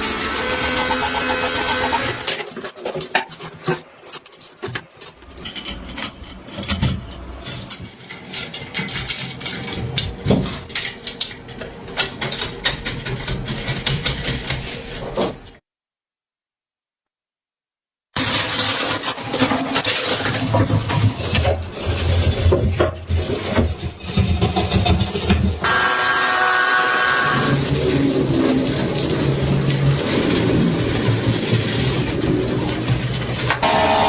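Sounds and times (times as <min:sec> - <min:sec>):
metal tools clinking and knocking: 0:02.3 - 0:09.9.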